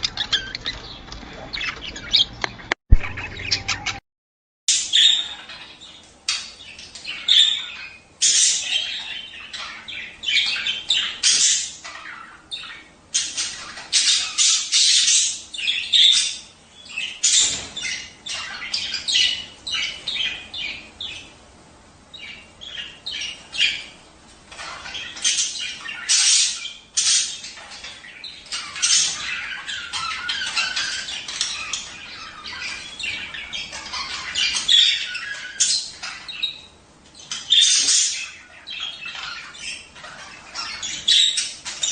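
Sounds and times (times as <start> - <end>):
budgerigars chattering: 0.0 - 4.0, 4.7 - 21.4, 22.2 - 41.9.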